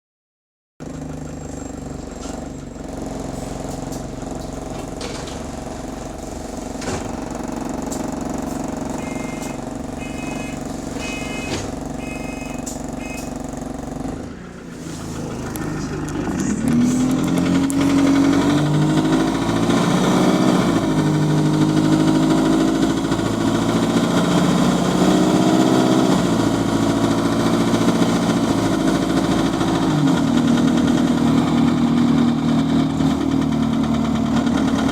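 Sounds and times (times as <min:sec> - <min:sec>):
bus diesel engine: 0:00.8 - 0:34.9
door buzzer beeping: 0:08.8 - 0:13.4.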